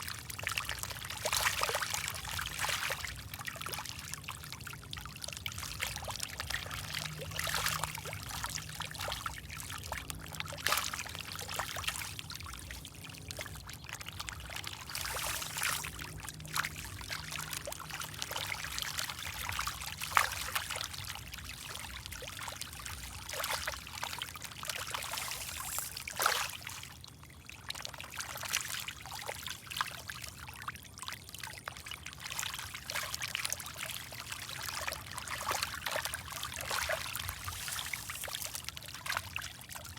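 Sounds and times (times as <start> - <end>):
water pouring and trickling: 0.0 - 39.9
water splashes: 5.3 - 28.9, 32.3 - 39.9.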